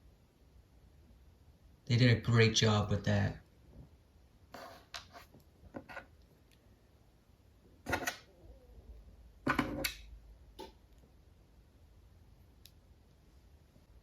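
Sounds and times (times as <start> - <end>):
rustling scrapes: 4.5 - 6.0.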